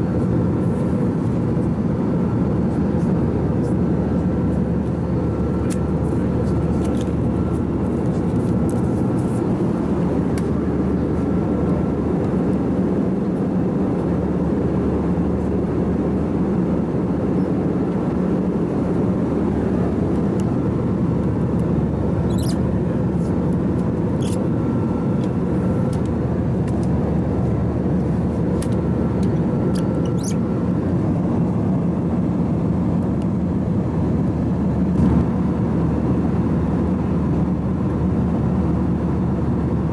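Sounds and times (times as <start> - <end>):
airplane cabin noise: 0.0 - 39.9.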